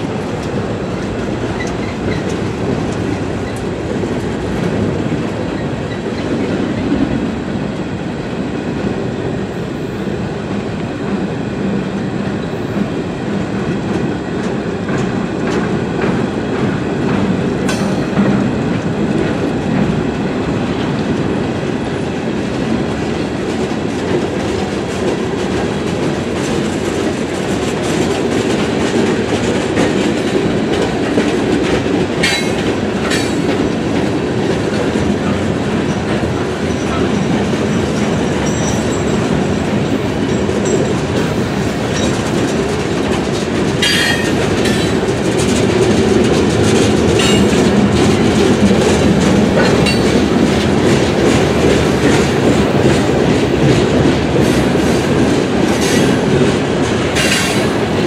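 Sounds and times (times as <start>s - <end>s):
train wheels clicking over rail joints: 0.0s - 58.0s
train wheel squeals: 1.0s - 2.4s, 38.0s - 39.6s, 40.2s - 42.4s, 43.8s - 45.1s.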